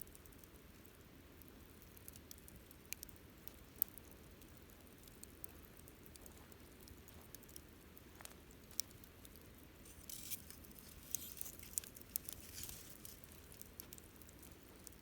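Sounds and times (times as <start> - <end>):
campfire crackling and popping: 0.0 - 15.0
fire hissing: 9.8 - 14.2.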